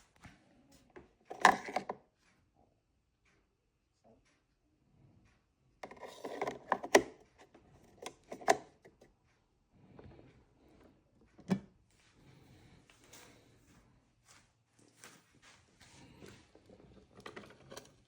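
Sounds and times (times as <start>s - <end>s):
handling clicks and knocks: 1.3s - 2.0s, 7.8s - 9.0s.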